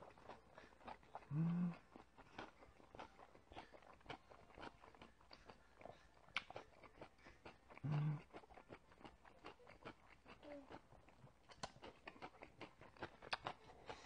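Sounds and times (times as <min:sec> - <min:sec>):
wet chewing mouth sounds: 0:00.0 - 0:14.0
person humming mm: 0:01.3 - 0:01.8, 0:07.8 - 0:08.3.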